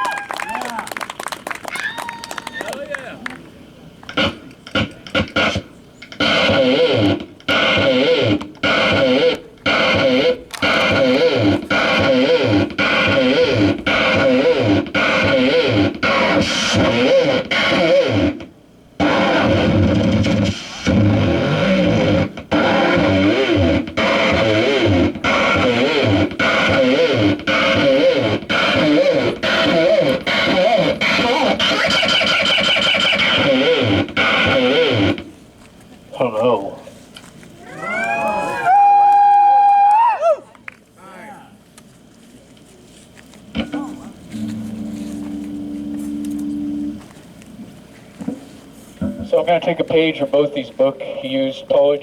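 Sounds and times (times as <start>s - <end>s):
distorted warbling drone pulses: 4.1s - 35.3s, 43.5s - 47.0s.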